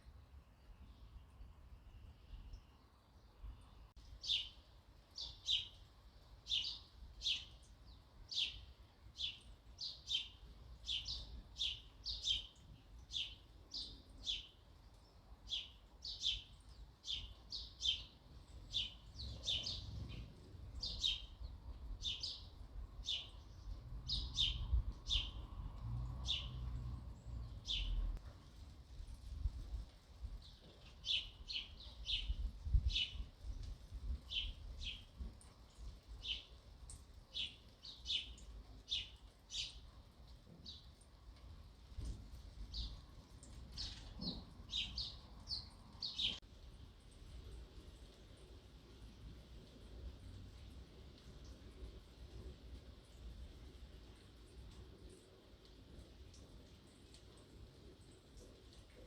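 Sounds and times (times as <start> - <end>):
sparrow chirping: 8.3 - 14.6, 15.5 - 25.5, 27.4 - 28.1, 43.8 - 46.4.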